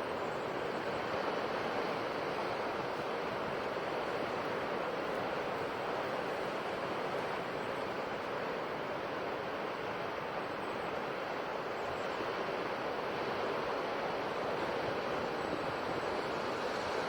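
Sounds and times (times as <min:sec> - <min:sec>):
ocean waves washing on shore: 0:00.0 - 0:17.0.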